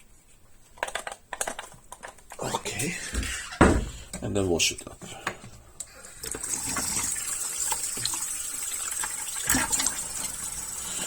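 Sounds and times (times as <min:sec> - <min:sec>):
knock: 0:03.2 - 0:04.1
water running from a tap: 0:06.1 - 0:11.0.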